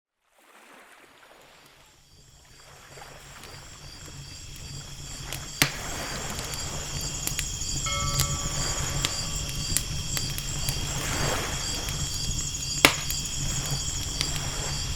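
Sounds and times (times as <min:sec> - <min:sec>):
ocean waves: 0:00.3 - 0:14.9
night insects chirping: 0:01.2 - 0:14.9
campfire crackling and popping: 0:03.0 - 0:14.9.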